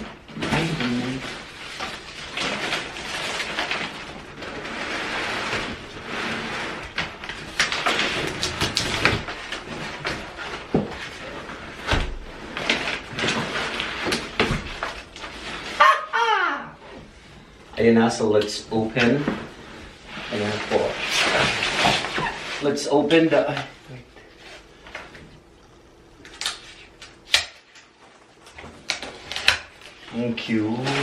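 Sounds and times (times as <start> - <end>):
packaging scraping and rustling: 0.0 - 15.9, 19.0 - 25.1.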